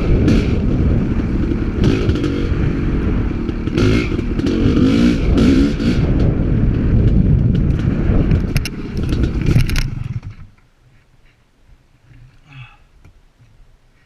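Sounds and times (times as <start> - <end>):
dirt bike engine rattling: 0.0 - 10.6.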